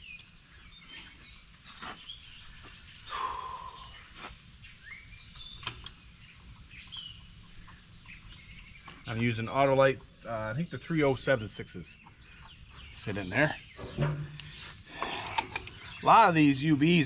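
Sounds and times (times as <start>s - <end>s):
small birds chirping: 0.0s - 17.0s
low steady hum: 4.6s - 17.0s.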